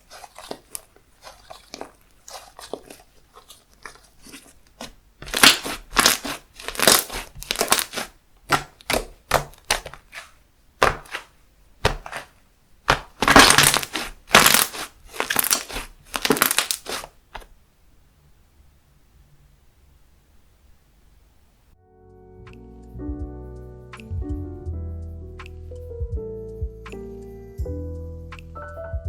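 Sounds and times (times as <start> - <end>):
slime squishing by hand: 0.0 - 17.5.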